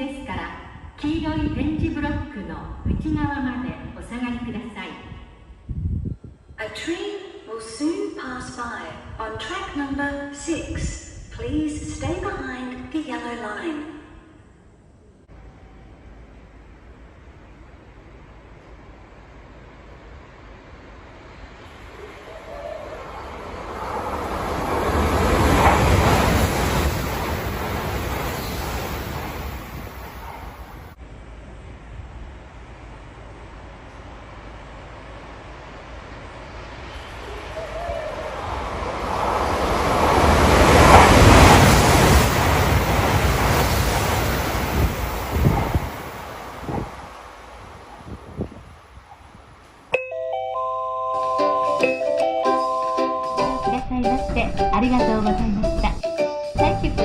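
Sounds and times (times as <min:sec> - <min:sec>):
train rumbling and hissing: 0:14.6 - 0:49.9, 0:51.4 - 0:57.0.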